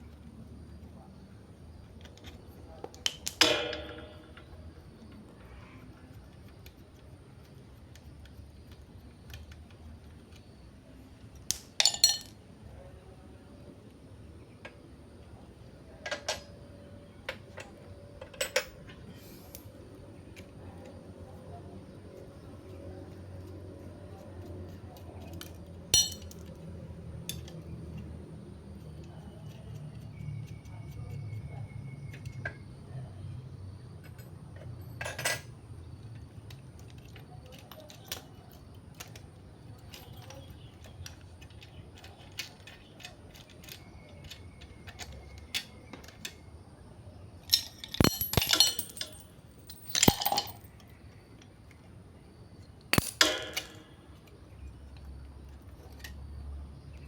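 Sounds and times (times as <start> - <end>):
faint low hum: 0.0 - 57.0
metal items clinking and clanking: 3.2 - 4.7, 11.8 - 12.4, 25.2 - 26.5, 47.4 - 50.8, 53.0 - 54.1.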